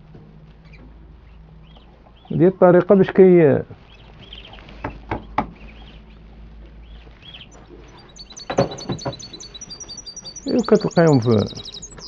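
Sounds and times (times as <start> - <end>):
songbirds chirping: 0.0 - 12.0
rapid high bird notes: 3.8 - 12.0
sharp knocks: 4.8 - 5.6, 8.4 - 9.4.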